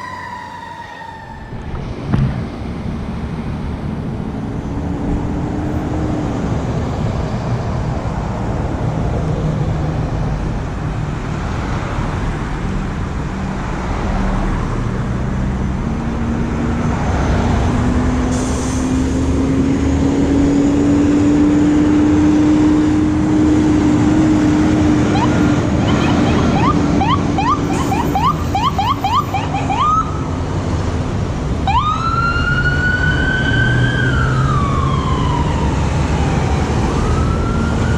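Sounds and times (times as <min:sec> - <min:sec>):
electronic siren yelping and wailing: 0:00.0 - 0:01.9, 0:25.1 - 0:30.2
low engine drone: 0:00.0 - 0:04.4
traffic: 0:00.0 - 0:37.9.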